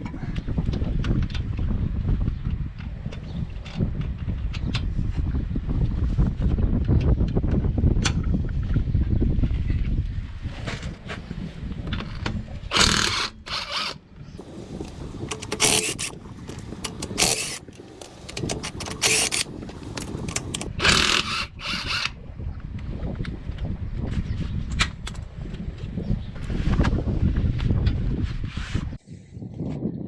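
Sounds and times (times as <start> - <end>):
wind rumble on microphone: 0.0 - 13.2, 14.1 - 30.0
ratchet clicking: 14.4 - 21.3.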